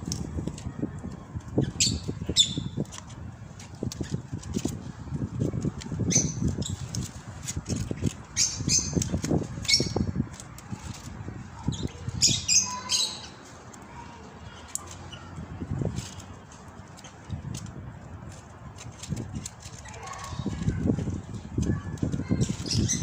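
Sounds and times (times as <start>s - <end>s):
rustling and knocking in branches: 0.0s - 23.0s
parrot squawking: 12.1s - 13.4s.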